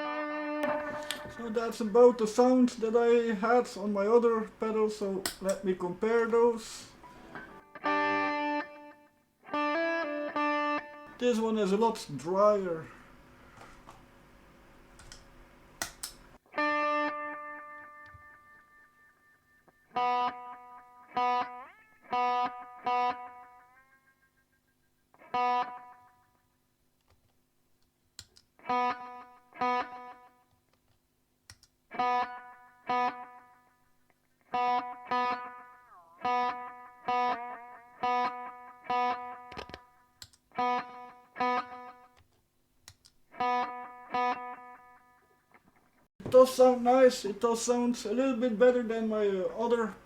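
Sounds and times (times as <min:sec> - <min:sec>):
electric guitar with delay: 0:00.0 - 0:03.4, 0:07.1 - 0:11.5, 0:16.5 - 0:26.5, 0:28.6 - 0:30.4, 0:31.9 - 0:33.8, 0:34.5 - 0:42.1, 0:43.3 - 0:45.4.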